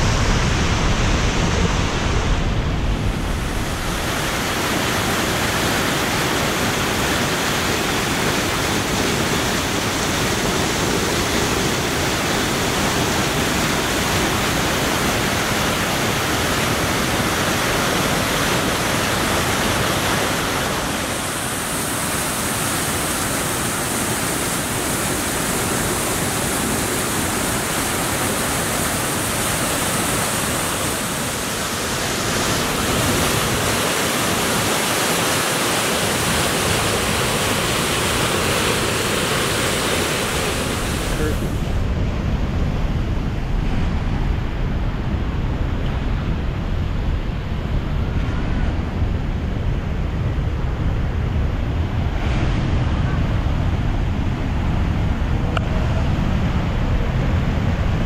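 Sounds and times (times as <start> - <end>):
whitewater river rushing: 0.0 - 43.4
low water rumble: 0.0 - 58.0.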